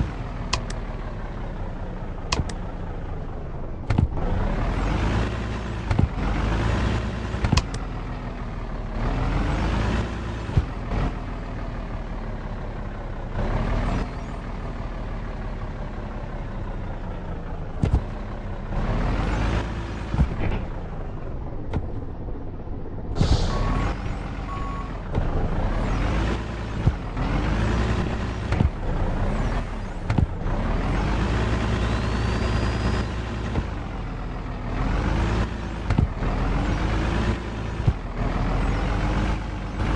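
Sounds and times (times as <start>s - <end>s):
truck engine under load: 0.0s - 39.9s
short beeps: 23.3s - 25.0s.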